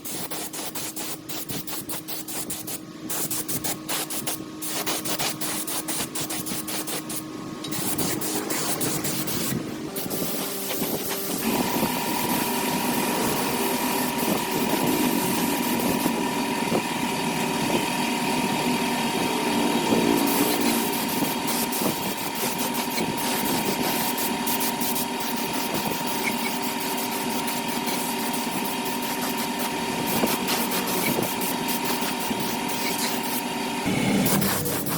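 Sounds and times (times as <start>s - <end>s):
small motor humming: 0.0s - 34.9s
scraping strokes: 0.2s - 11.5s, 34.1s - 34.9s.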